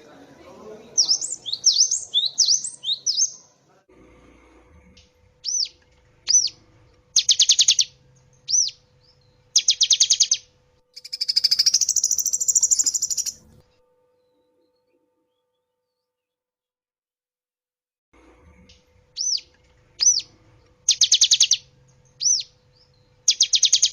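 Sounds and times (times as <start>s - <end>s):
bird whistled notes: 1.0s - 3.4s, 7.2s - 8.8s, 9.6s - 13.4s, 19.2s - 20.3s, 20.9s - 21.6s, 22.2s - 22.6s, 23.3s - 23.9s
bird trills: 1.0s - 3.5s, 5.4s - 13.5s, 19.1s - 23.9s
bird buzzy rattling trill: 5.1s - 13.6s, 18.8s - 23.9s.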